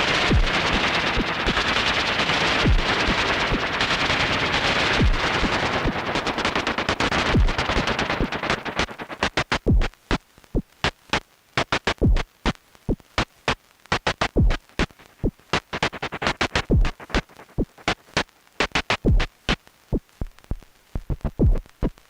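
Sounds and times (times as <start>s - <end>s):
deep kick drum: 0.3s - 0.5s, 2.7s - 2.9s, 5.0s - 5.2s, 7.4s - 7.6s, 9.7s - 9.9s, 12.0s - 12.2s, 14.4s - 14.6s, 16.7s - 16.9s, 19.1s - 19.3s, 21.1s - 21.6s.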